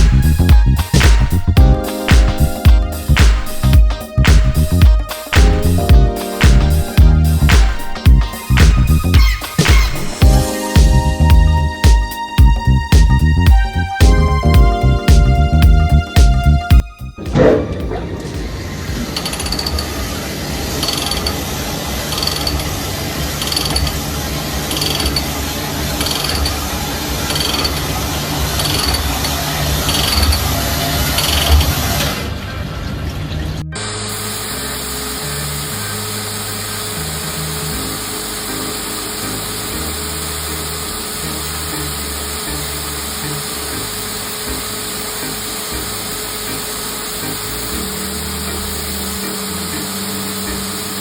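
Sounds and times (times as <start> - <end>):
background music: 0.0 - 21.0, 33.7 - 51.0
machine humming: 33.8 - 51.0
power tool running: 33.8 - 51.0.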